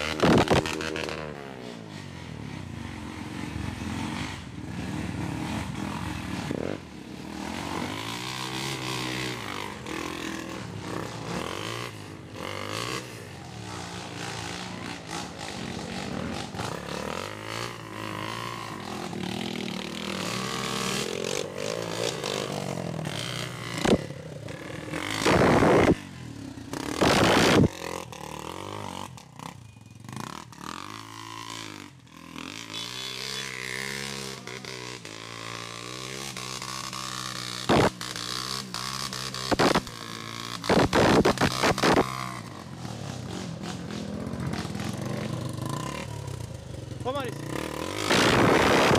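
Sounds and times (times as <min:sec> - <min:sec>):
motorcycle engine revving: 0:00.0 - 0:48.9
loud rushing bursts: 0:48.0 - 0:48.9.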